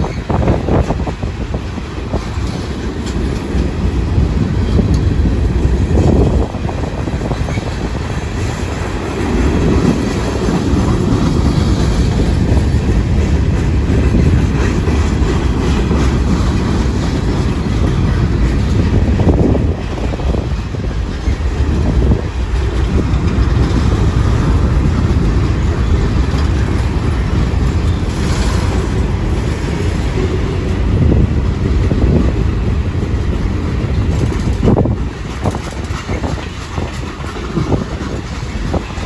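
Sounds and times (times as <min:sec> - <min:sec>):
freight train rumbling past: 0:00.0 - 0:39.0
wheels clacking over rail joints: 0:00.0 - 0:39.0.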